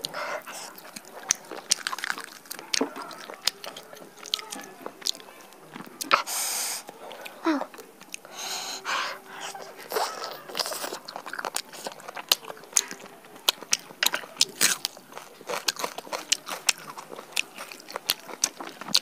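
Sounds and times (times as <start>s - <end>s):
crisp chewing crunches: 0.0s - 19.0s
wet mouth clicks: 0.0s - 19.0s
meat being torn by hand: 0.6s - 6.1s.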